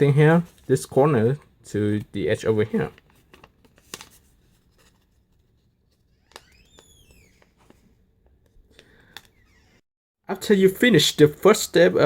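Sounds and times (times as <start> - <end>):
paper folding and crinkling: 2.7 - 8.6
high squeak: 6.4 - 7.5.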